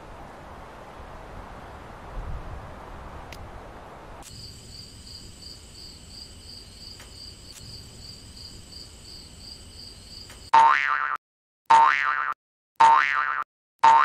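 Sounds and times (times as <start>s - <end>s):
soft outdoor air noise: 0.0s - 10.5s
crickets trilling: 4.2s - 10.5s.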